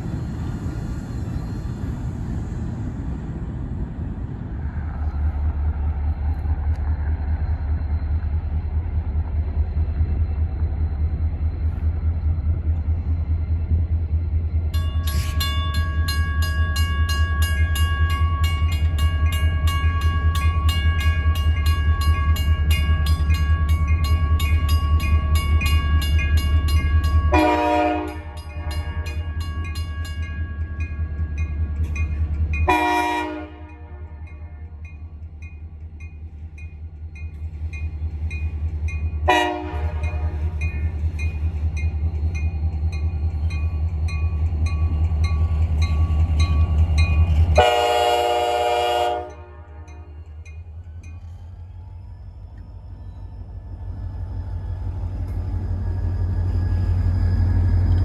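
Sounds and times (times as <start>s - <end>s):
freight train rumbling past: 0.0s - 58.0s
locomotive horn chord: 27.3s - 29.1s, 32.7s - 34.7s, 39.3s - 40.5s, 47.6s - 50.1s.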